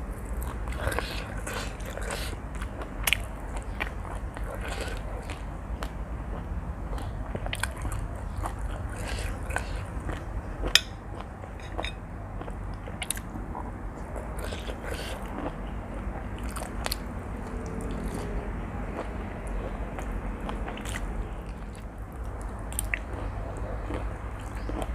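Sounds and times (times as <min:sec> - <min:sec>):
person chewing noodles: 0:00.1 - 0:24.9.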